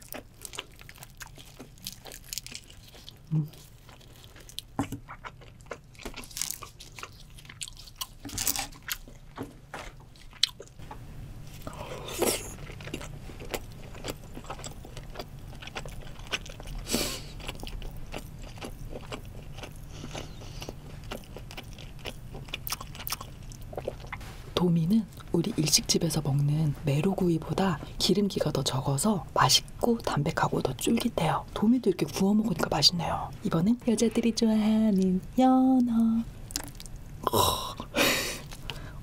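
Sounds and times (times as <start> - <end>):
crunchy chewing and biting: 0.0 - 24.3.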